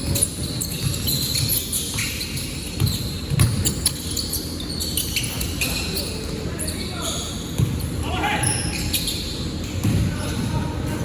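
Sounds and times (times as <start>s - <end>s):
crowd and court noise: 0.0s - 11.0s
basketball bouncing thumps: 2.8s - 4.0s, 7.6s - 7.9s, 9.8s - 11.0s.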